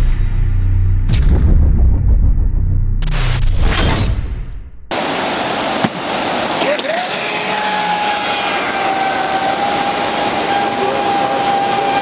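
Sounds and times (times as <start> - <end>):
rushing water hiss: 4.9 - 12.0
electric motor high whine: 7.6 - 12.0.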